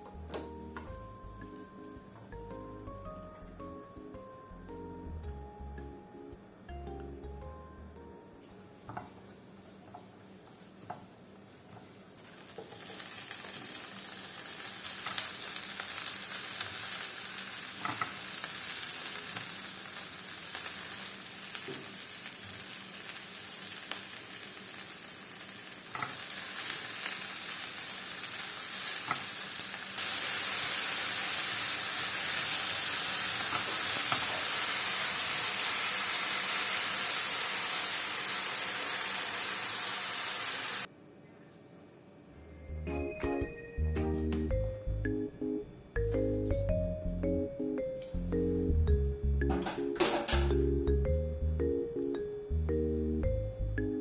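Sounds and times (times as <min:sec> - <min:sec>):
food sizzling in a pan: 0:09.9 - 0:40.9.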